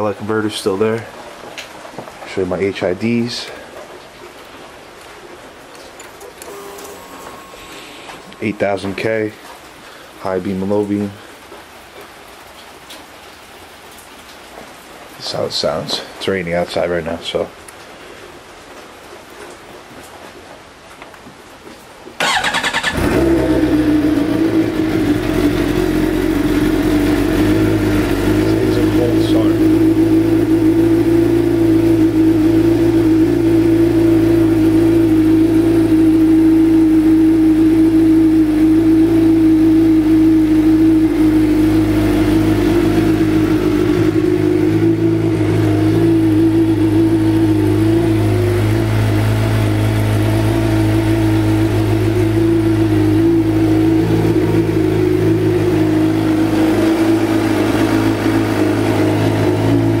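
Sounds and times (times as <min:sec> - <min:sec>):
motorcycle engine idling: 0:22.2 - 1:00.0.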